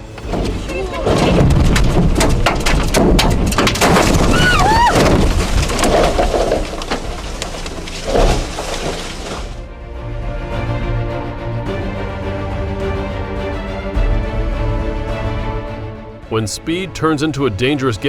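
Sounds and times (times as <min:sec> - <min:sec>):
background music: 0:00.0 - 0:03.4, 0:09.5 - 0:18.0
crashing and breaking impacts: 0:00.0 - 0:09.7
person yelling: 0:04.3 - 0:05.0.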